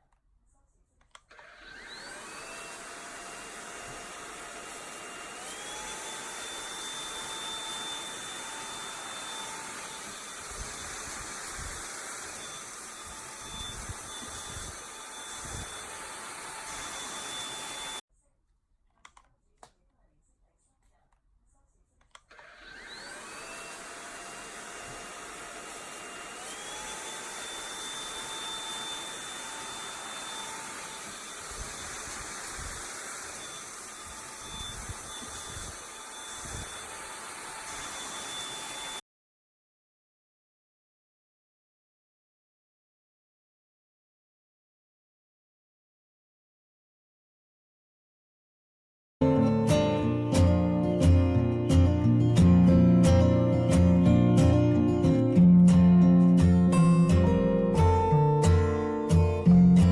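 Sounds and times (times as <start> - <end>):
robot vacuum motor whining: 1.1 - 18.0, 22.1 - 39.0.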